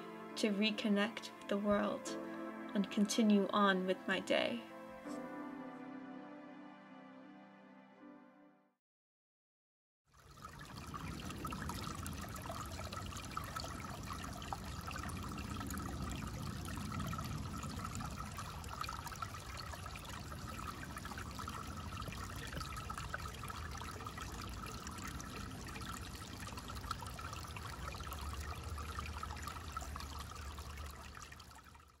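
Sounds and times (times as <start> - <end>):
stream trickling: 10.1 - 32.0.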